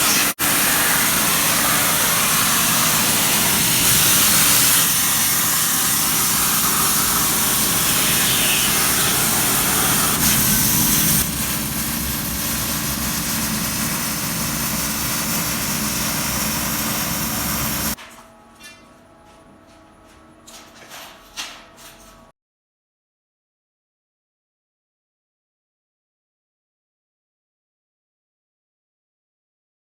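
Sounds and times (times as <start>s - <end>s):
plasma cutter hissing: 0.0s - 18.0s.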